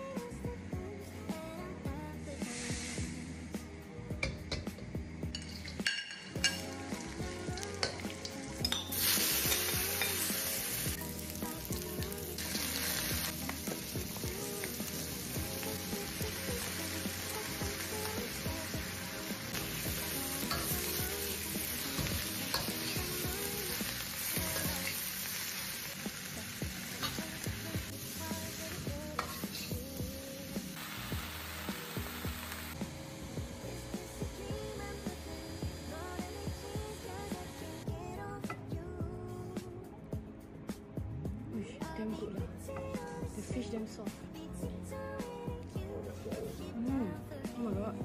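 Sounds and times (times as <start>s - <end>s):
vegetables sizzling in a wok: 2.2s - 37.8s.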